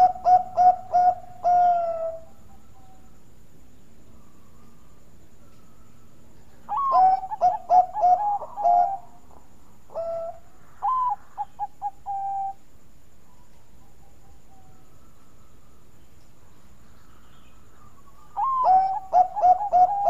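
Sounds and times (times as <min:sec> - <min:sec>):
dove cooing: 0:00.0 - 0:03.1, 0:06.6 - 0:12.6, 0:17.5 - 0:20.0.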